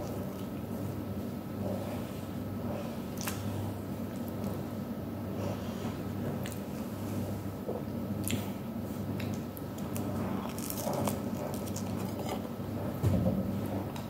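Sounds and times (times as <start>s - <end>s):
person chewing food: 5.5s - 7.4s, 8.2s - 13.0s.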